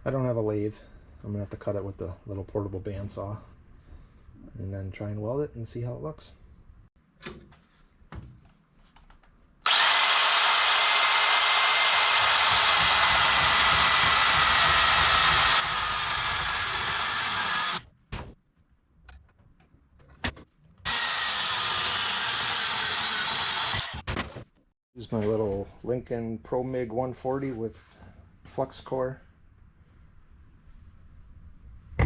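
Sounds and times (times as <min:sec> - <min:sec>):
bandsaw cutting: 0:09.7 - 0:17.8, 0:20.9 - 0:24.1.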